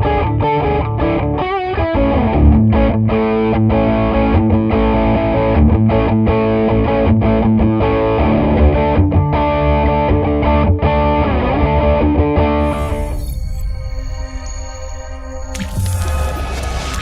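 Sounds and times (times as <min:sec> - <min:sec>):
distorted electric guitar chords: 0:00.0 - 0:13.2.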